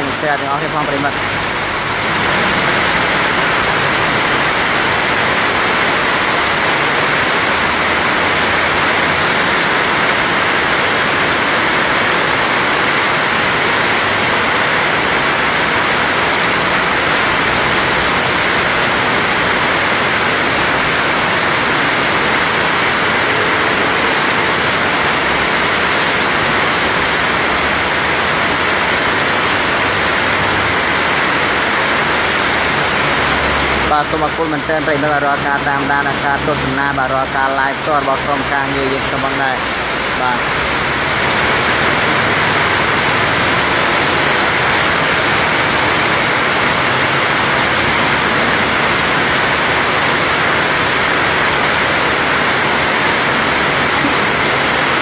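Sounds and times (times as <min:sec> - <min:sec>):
heavy rain hiss: 0:00.0 - 0:55.0.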